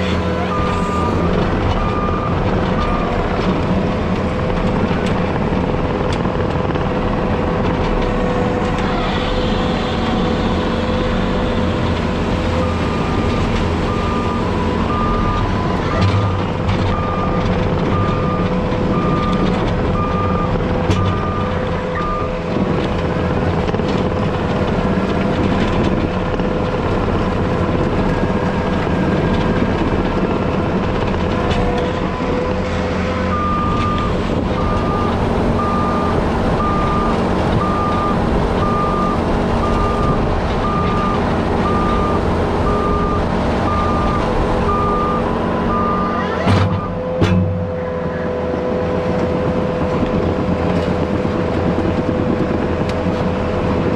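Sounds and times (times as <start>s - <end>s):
heavy equipment engine running: 0.0s - 53.9s
backup alarm beeping: 33.3s - 47.0s.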